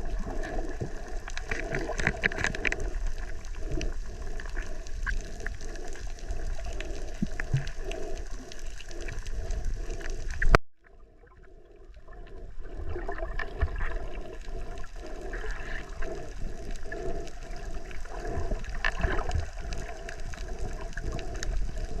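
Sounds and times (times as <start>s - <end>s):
small underwater crackles: 0.0s - 22.0s
underwater water rushing: 0.0s - 22.0s.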